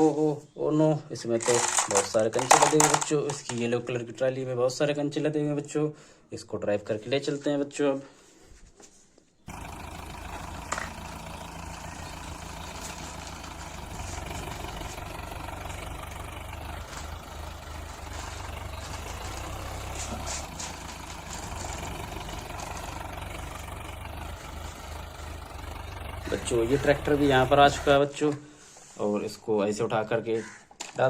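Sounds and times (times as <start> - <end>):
tractor engine running: 1.4 - 3.6, 9.5 - 28.1.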